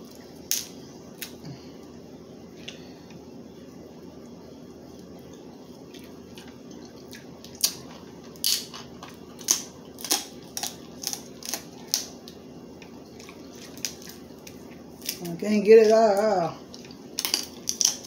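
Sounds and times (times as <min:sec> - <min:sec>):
steady low hum: 0:00.0 - 0:18.0
crab shells cracking: 0:00.5 - 0:01.4, 0:07.5 - 0:12.4, 0:13.2 - 0:15.3, 0:16.7 - 0:18.0.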